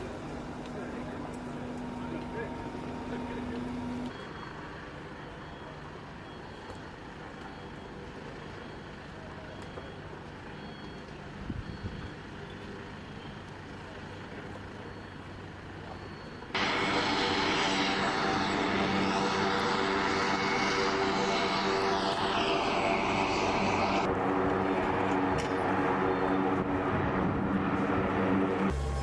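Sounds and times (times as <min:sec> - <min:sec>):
aircraft engine noise: 0:16.6 - 0:29.0.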